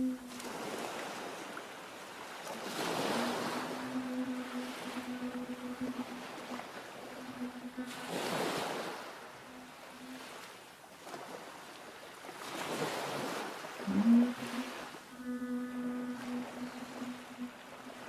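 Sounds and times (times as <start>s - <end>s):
low hummed note: 0.0s - 1.2s, 2.5s - 10.4s, 13.8s - 18.0s
sea waves washing in: 0.0s - 18.0s.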